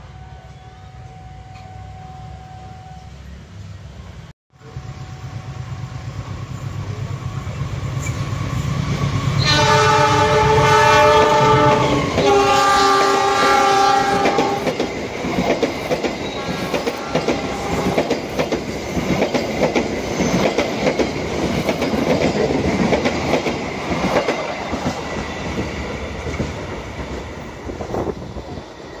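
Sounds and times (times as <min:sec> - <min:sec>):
train wheels clattering on rails: 0:07.8 - 0:29.0
train horn blasts: 0:09.4 - 0:14.7, 0:16.3 - 0:18.1.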